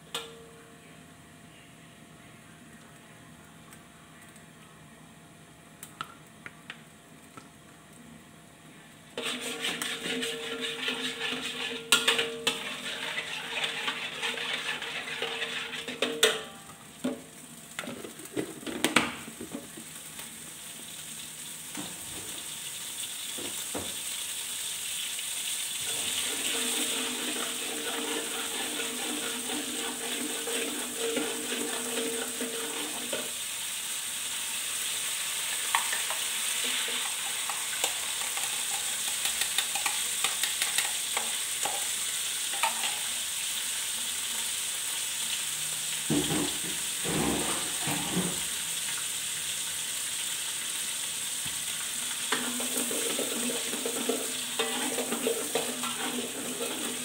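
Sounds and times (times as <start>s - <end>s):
paste sizzling in hot oil: 9.2s - 16.0s, 22.4s - 57.0s
metal ladle scraping wok: 9.2s - 16.3s, 25.9s - 33.3s, 52.3s - 57.0s.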